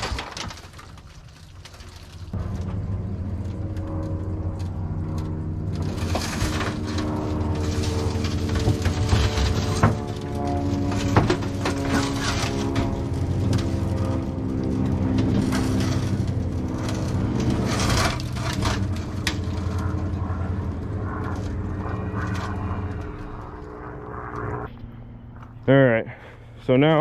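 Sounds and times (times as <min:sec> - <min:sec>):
engine running: 0:00.0 - 0:27.0
scrapes and knocks: 0:05.7 - 0:13.8, 0:14.8 - 0:20.3.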